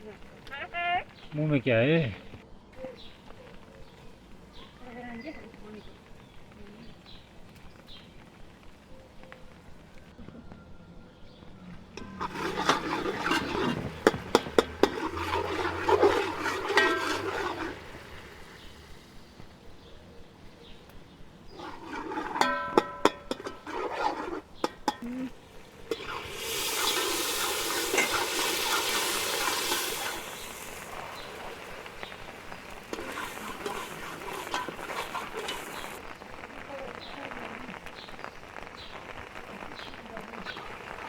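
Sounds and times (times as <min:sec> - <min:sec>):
loud sizzling hiss: 0:00.0 - 0:41.0
metal utensil scraping a pot: 0:12.0 - 0:18.9, 0:21.5 - 0:36.4.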